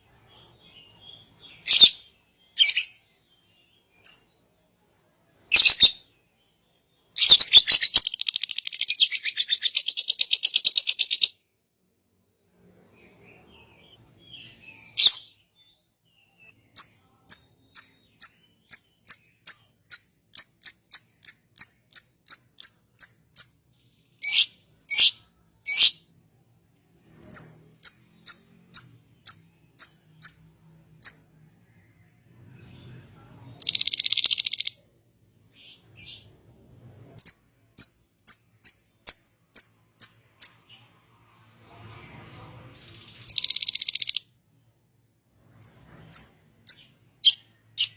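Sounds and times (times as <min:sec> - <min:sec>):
songbird chirping: 0:00.0 - 0:11.5, 0:12.5 - 0:36.4, 0:42.8 - 0:44.7.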